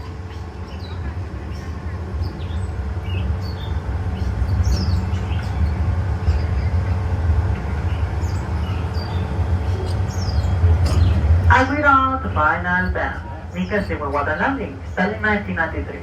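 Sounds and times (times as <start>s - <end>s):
ride train rumbling on track: 0.0s - 16.0s
bird chirps: 7.8s - 15.8s.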